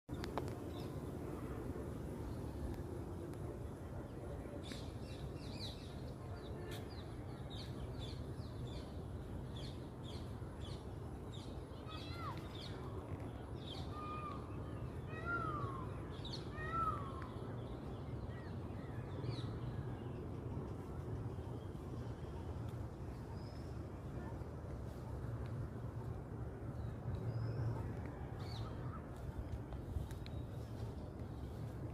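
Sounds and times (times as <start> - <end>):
steady low rumble: 0.1 - 31.9.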